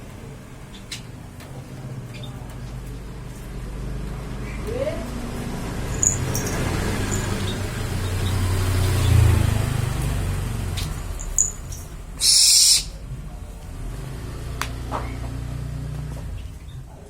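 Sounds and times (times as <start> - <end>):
owl hissing screech: 12.2 - 13.0.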